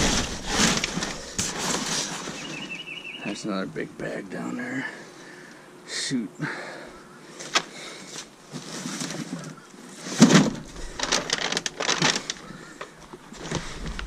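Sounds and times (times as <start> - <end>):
bags rustling and knocking: 0.0 - 2.8, 7.5 - 14.0.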